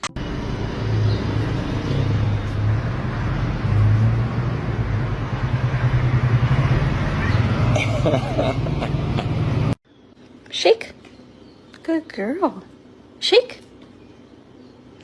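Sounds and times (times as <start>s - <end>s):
strong low hum: 0.0s - 9.8s
vehicle running rumble: 0.0s - 9.8s.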